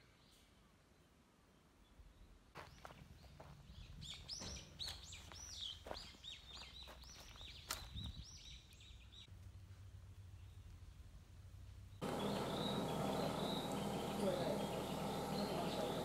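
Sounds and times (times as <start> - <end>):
small bird chirping: 2.6 - 9.3, 11.8 - 16.0.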